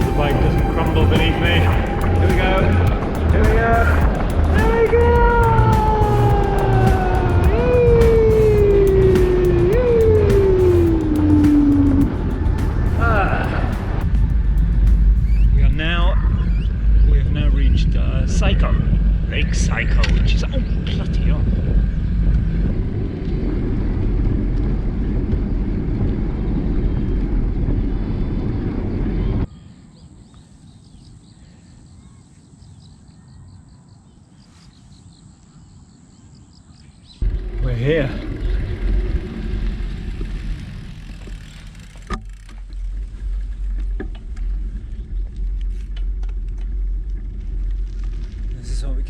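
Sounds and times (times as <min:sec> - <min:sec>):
steady low rumble: 0:00.0 - 0:29.5, 0:37.2 - 0:49.0
wind buffeting microphone: 0:00.0 - 0:29.5.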